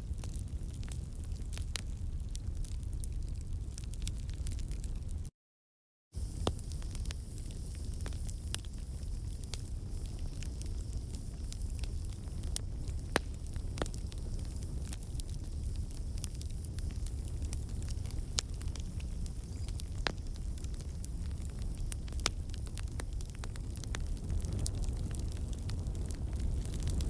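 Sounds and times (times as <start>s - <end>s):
low rumble of burning logs: 0.0s - 5.3s, 6.2s - 27.0s
campfire pops and snaps: 6.2s - 27.0s.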